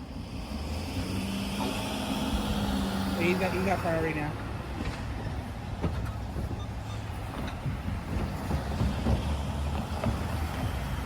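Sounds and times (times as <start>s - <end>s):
road traffic rumble: 0.0s - 11.0s
wind on microphone: 5.9s - 11.0s.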